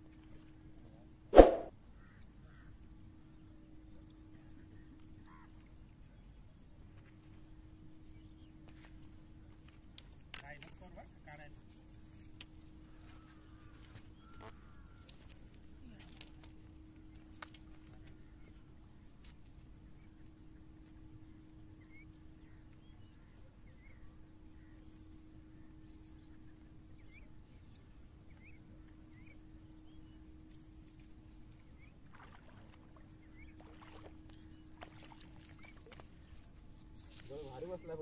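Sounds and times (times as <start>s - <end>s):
small birds chirping: 25.9s - 38.0s.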